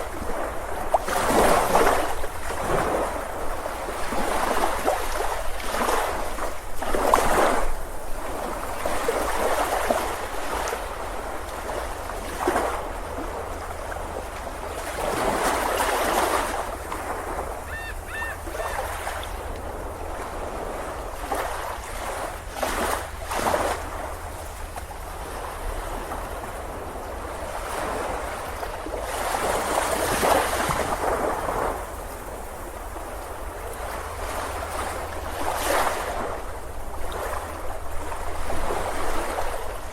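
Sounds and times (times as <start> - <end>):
ocean surf: 0.0 - 39.9.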